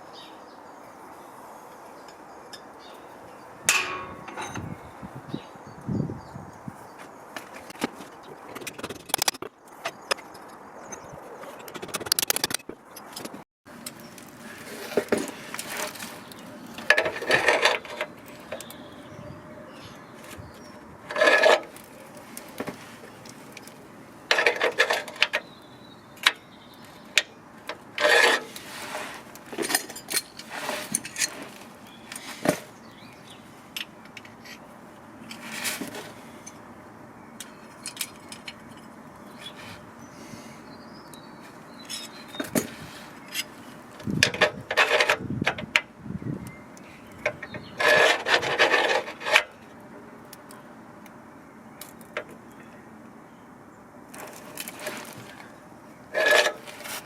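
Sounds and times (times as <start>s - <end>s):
knocks and clinks of hand work: 3.7s - 4.8s
loud scrapes: 28.0s - 29.3s, 30.4s - 31.6s.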